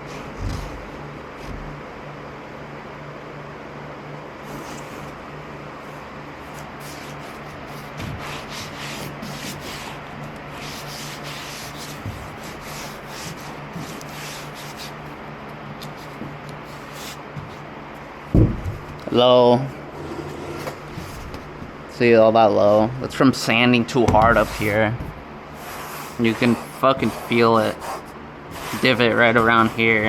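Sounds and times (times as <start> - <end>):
steady low hum: 0.0 - 30.0
foam board sanded by hand: 5.8 - 15.2, 15.9 - 17.6, 24.2 - 30.0.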